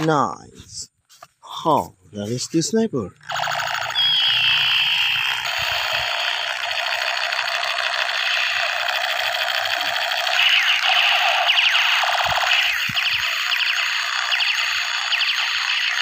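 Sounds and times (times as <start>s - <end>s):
toy gun electronic shots: 3.2s - 16.0s
quick electronic zaps: 10.3s - 16.0s.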